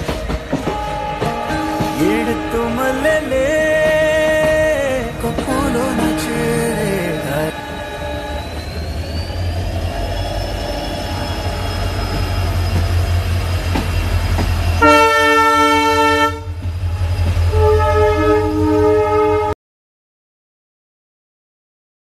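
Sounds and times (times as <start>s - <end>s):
train rumble: 0.0s - 19.6s
locomotive horn blasts: 0.6s - 4.7s, 5.6s - 8.6s, 14.8s - 16.6s, 17.5s - 19.6s.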